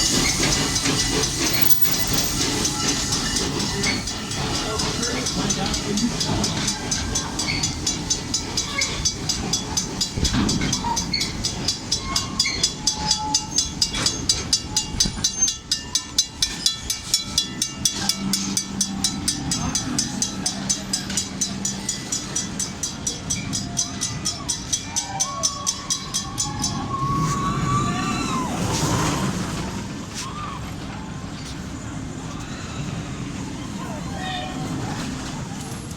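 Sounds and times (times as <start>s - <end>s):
railroad crossing bell ringing: 0.0s - 28.2s
train rumbling: 0.0s - 35.9s.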